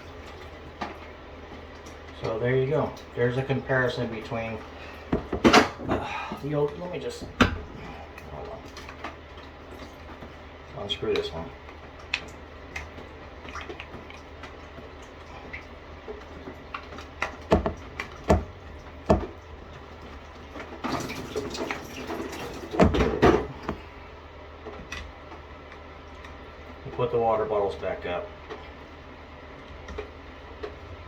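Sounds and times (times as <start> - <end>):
water dripping: 0.0 - 5.3, 6.1 - 24.0
shower head handling knocks: 22.8 - 23.8.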